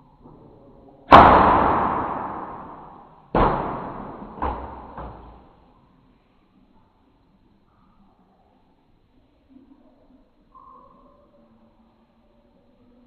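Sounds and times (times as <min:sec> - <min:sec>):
air gun bang with ringing: 0:01.1 - 0:05.4.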